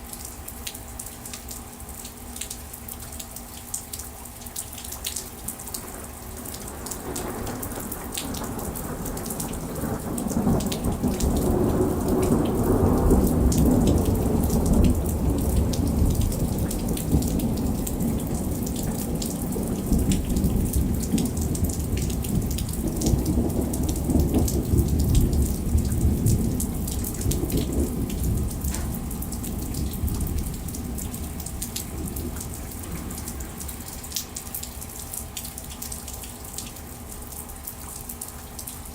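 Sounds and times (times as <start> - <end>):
heavy rain: 0.0 - 38.9
rolling thunder: 5.8 - 34.0.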